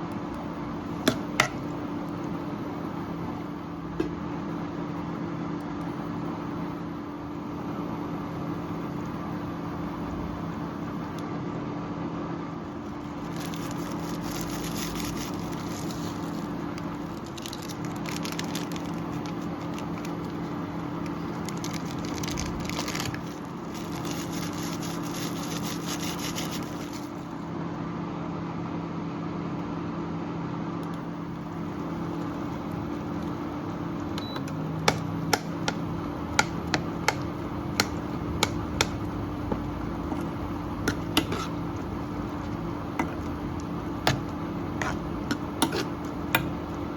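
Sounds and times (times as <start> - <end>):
electric hum: 30.8 - 46.9.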